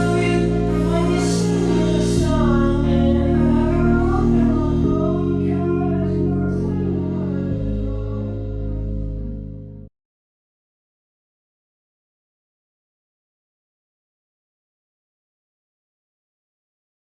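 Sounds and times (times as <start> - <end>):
song with singing over chords: 0.0 - 9.9.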